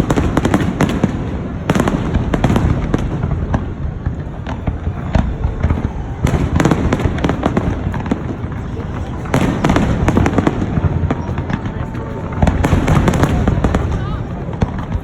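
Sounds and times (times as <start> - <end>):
fireworks booming and crackling: 0.0 - 15.0.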